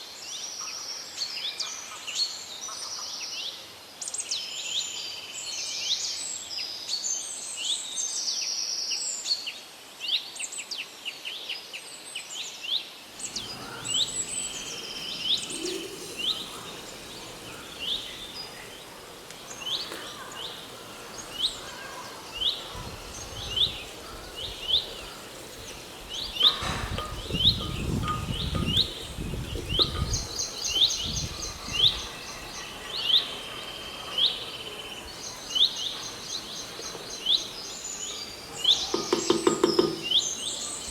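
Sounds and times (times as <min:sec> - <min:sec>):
small birds chirping: 0:13.1 - 0:40.9.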